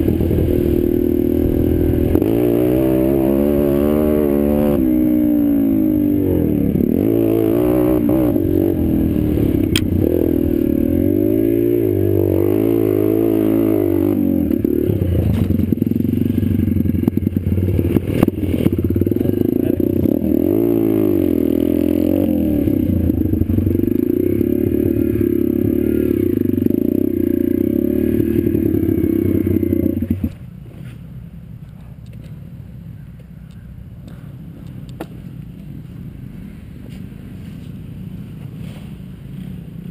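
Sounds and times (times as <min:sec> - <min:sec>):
pit bike engine revving: 0:00.0 - 0:30.4.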